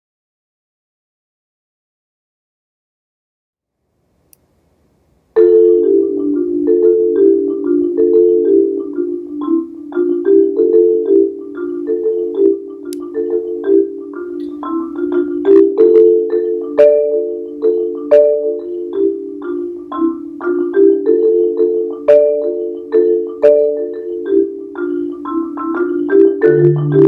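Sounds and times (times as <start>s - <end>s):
marimba playing: 5.4s - 27.0s.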